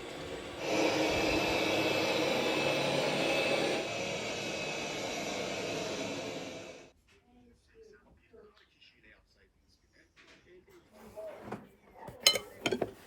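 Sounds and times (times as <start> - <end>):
robot vacuum cleaner suction: 0.0 - 6.9.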